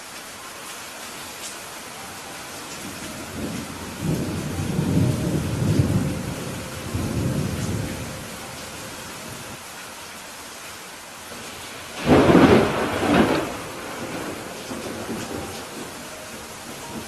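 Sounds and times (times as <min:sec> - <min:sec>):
rain hissing: 0:00.0 - 0:17.0
thunder rumbling: 0:02.6 - 0:09.6, 0:11.8 - 0:17.0.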